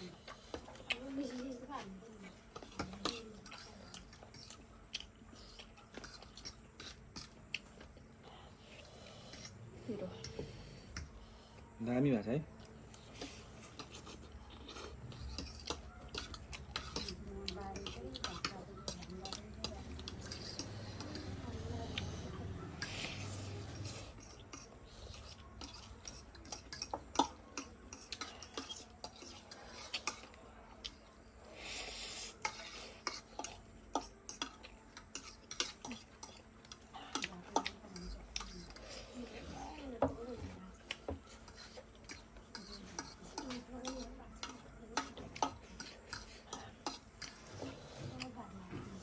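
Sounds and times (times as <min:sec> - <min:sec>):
person chewing food: 0:00.0 - 0:01.5, 0:02.1 - 0:09.7, 0:12.5 - 0:39.9, 0:40.7 - 0:49.0
utensils clinking against dishes: 0:13.2 - 0:21.6, 0:22.8 - 0:30.3, 0:41.3 - 0:49.0.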